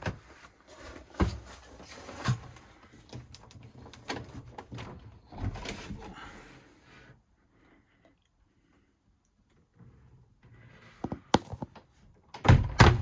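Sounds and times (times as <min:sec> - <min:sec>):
handling and rustling: 0:00.0 - 0:06.4.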